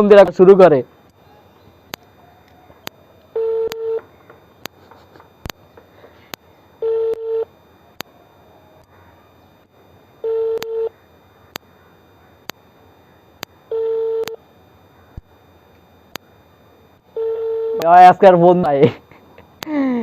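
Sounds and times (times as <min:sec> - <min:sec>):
phone ringback beeps: 0:03.3 - 0:04.0, 0:06.8 - 0:07.5, 0:10.2 - 0:11.0, 0:13.7 - 0:14.4, 0:17.2 - 0:17.8.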